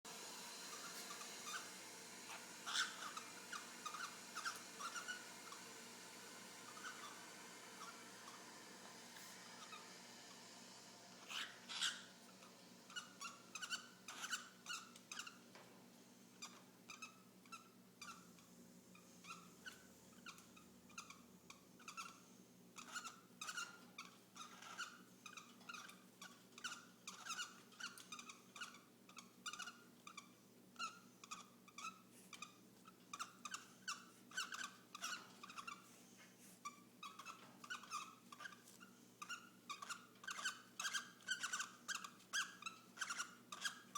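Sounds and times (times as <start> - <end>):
cockatiels chirping softly: 0.6 - 10.2, 11.1 - 15.6, 16.3 - 43.9.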